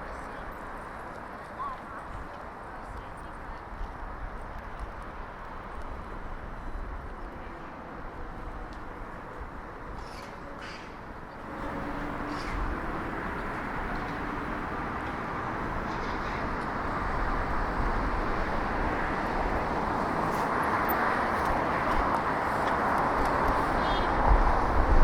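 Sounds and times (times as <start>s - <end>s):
car passing: 11.5s - 25.0s.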